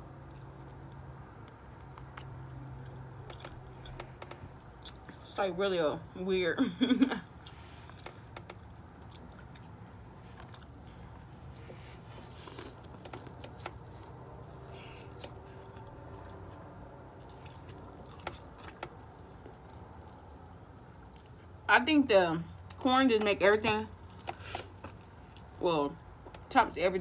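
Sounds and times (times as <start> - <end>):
steady low hum: 0.0 - 27.0
person chewing and biting corn: 0.2 - 4.0, 7.3 - 21.5.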